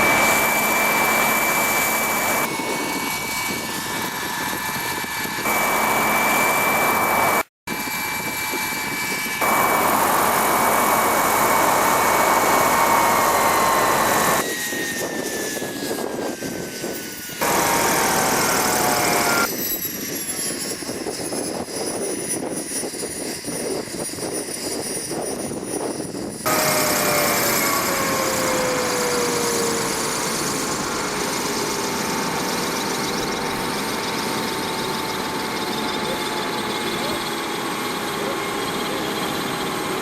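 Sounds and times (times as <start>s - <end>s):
helicopter rotor noise: 0.0s - 40.0s
model helicopter turbine whining: 0.0s - 40.0s.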